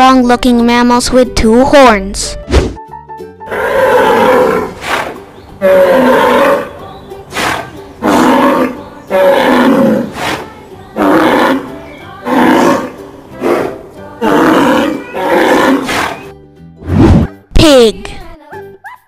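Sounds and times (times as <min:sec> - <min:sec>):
ox bellowing: 0:03.5 - 0:16.3.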